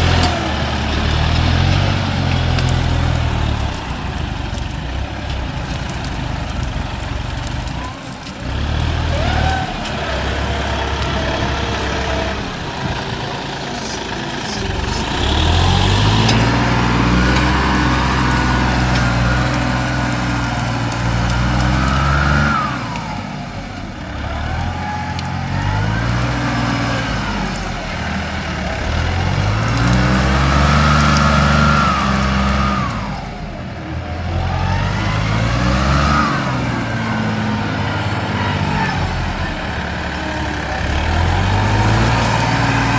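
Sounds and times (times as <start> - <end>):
rough grinding noise: 0.0 - 42.9
tractor engine under load: 0.0 - 42.9.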